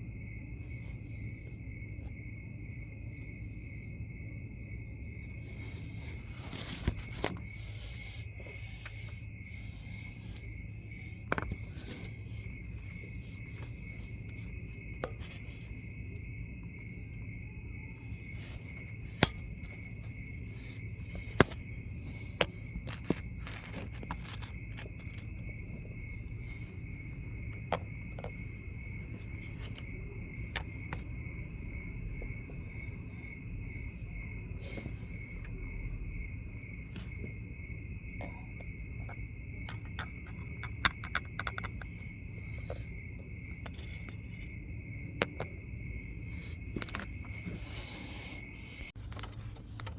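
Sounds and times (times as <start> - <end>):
crickets chirping: 0.0 - 49.9
low steady hum: 0.0 - 49.9
sharp clicks and clinks: 39.6 - 42.9.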